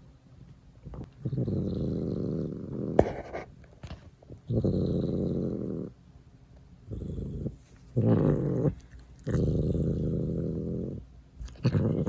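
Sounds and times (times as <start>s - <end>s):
cat purring: 0.8s - 3.4s, 4.3s - 6.0s, 6.9s - 12.0s.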